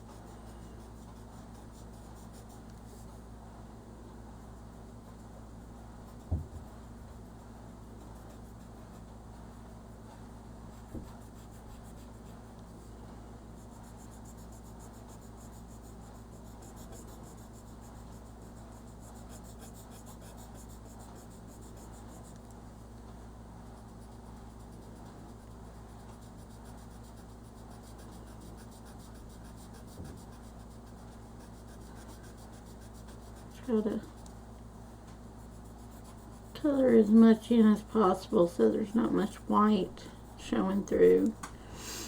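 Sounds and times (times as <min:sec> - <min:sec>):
crayon rubbing on paper: 0:00.0 - 0:03.2, 0:06.0 - 0:09.1, 0:10.6 - 0:12.5, 0:13.5 - 0:22.4, 0:23.8 - 0:34.3, 0:35.2 - 0:41.4.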